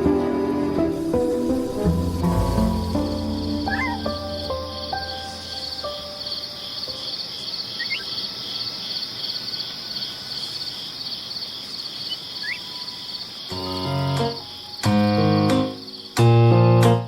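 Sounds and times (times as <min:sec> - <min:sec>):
insects chirping: 0:00.9 - 0:16.7
faint short rising whistles: 0:03.6 - 0:04.2.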